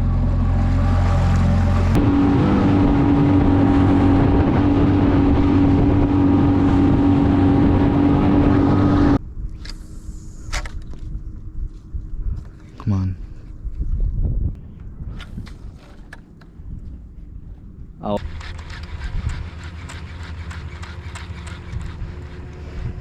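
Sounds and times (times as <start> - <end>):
outboard motor running: 0.0 - 9.2, 18.2 - 23.0
wind and water rushing: 2.0 - 9.2.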